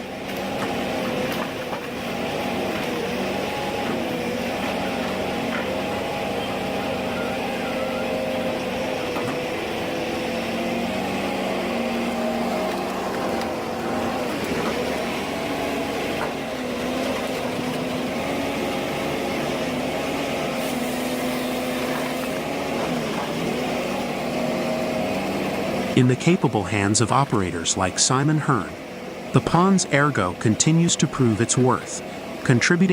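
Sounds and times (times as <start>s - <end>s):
diesel engine running: 0.0s - 32.9s.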